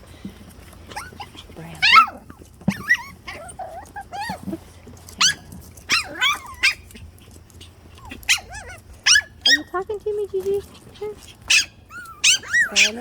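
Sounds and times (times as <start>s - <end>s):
puppies yipping: 0.7s - 13.0s.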